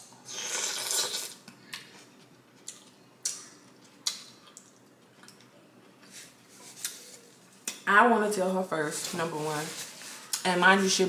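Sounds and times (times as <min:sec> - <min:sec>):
person chewing with wet smacks: 0:00.5 - 0:06.1.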